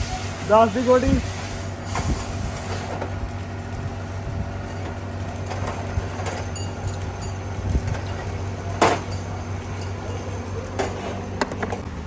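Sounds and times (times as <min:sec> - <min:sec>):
low machine hum: 0:00.0 - 0:12.0
metal tools clinking on engine parts: 0:04.6 - 0:11.8.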